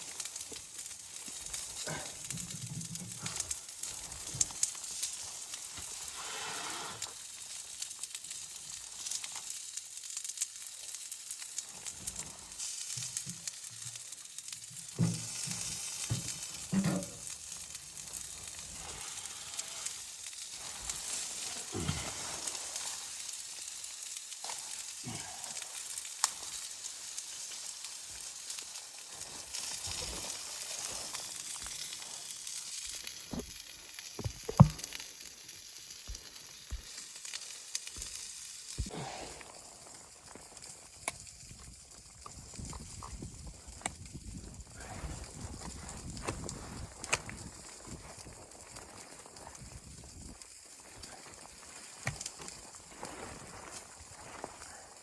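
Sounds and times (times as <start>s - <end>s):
food sizzling in a pan: 0.0s - 55.0s
utensil knocking and scraping: 34.2s - 34.8s.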